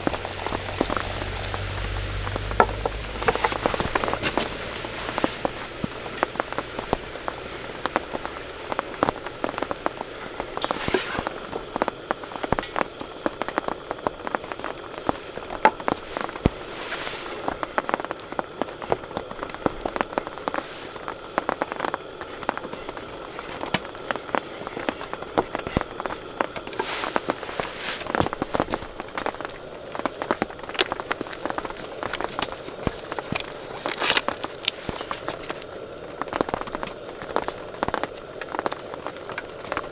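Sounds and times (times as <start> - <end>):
rain and sleet pattering: 0.0 - 39.9.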